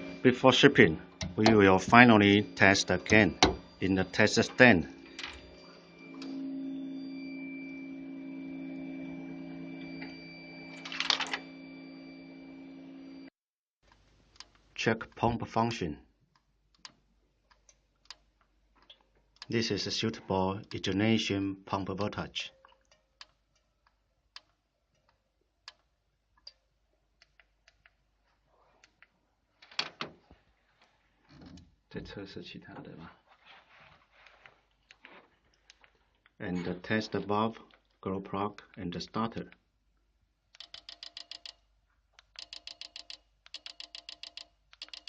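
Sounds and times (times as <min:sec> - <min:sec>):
motor switch click: 0:03.0 - 0:03.7.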